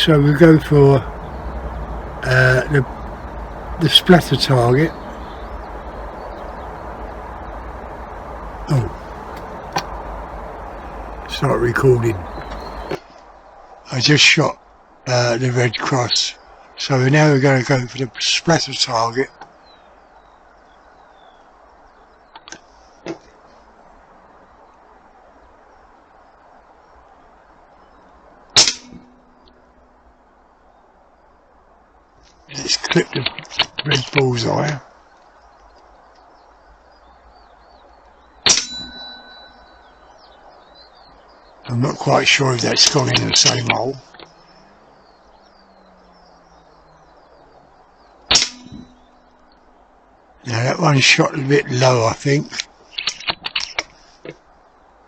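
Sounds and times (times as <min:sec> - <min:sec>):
faint clicks: 0:04.1 - 0:11.4, 0:32.2 - 0:36.3.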